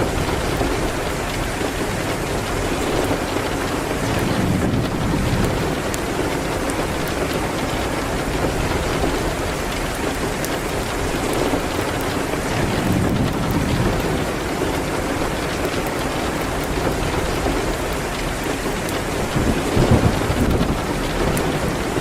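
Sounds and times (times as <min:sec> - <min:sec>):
rain on a window: 0:00.0 - 0:22.0
wood fire crackling: 0:00.0 - 0:22.0.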